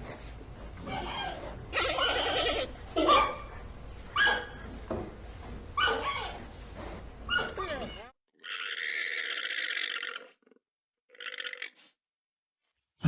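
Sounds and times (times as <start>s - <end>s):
dog yelping barks: 3.0s - 4.6s, 5.8s - 6.3s, 7.3s - 7.6s.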